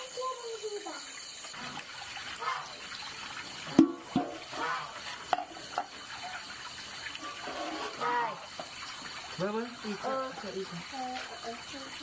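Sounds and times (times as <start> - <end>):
water splashing and trickling: 0.0 - 12.0
dishes knocking in water: 3.7 - 4.5, 5.2 - 6.0.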